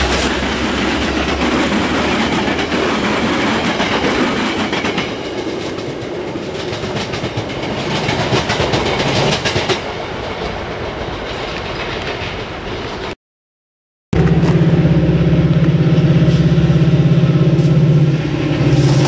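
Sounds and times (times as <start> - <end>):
train cars rolling on rails: 0.0 - 13.2, 14.2 - 19.0
wheels clicking over rail joints: 0.0 - 13.2.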